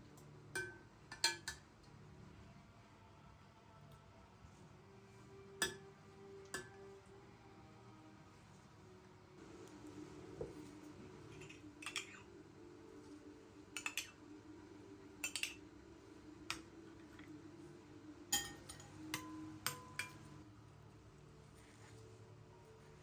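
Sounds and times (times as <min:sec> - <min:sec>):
dishes and cutlery clinking: 0:11.3 - 0:12.3, 0:13.7 - 0:14.2, 0:15.2 - 0:15.6, 0:18.3 - 0:20.4.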